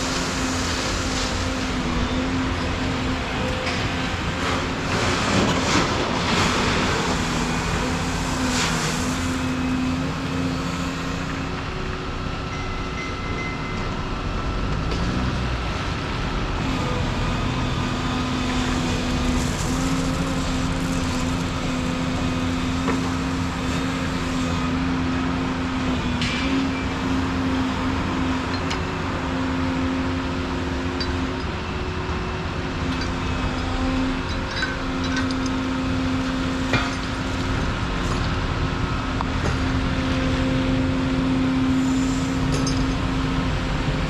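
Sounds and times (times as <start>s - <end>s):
excavator diesel engine running: 0.0s - 13.0s, 13.9s - 44.0s.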